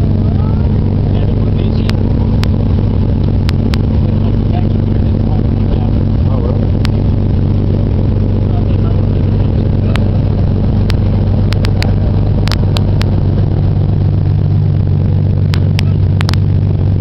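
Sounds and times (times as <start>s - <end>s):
car engine low drone: 0.0s - 17.0s
sharp clicks: 3.4s - 3.9s, 10.8s - 13.2s, 15.5s - 16.4s.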